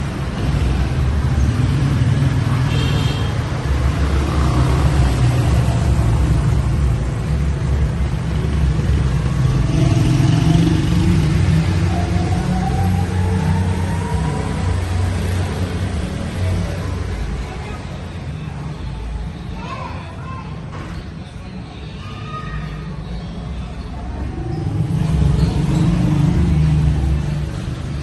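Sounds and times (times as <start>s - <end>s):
vehicle engine rumbling: 23.6s - 28.0s.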